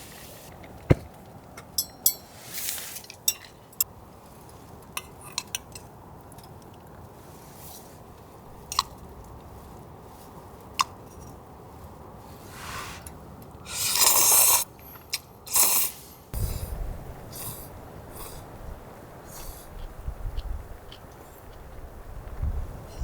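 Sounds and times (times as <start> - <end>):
cookware clinking and knocking: 1.8 - 2.3
steady low hiss: 15.8 - 23.0.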